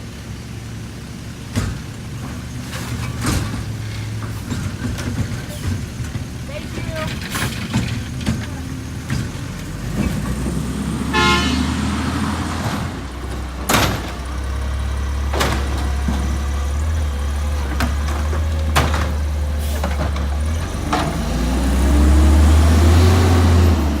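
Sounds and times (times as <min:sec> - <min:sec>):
truck diesel engine droning: 0:00.0 - 0:24.0
sharp knocks and bangs: 0:01.5 - 0:11.9, 0:12.5 - 0:14.5, 0:15.3 - 0:16.6
horn toot: 0:11.1 - 0:12.0.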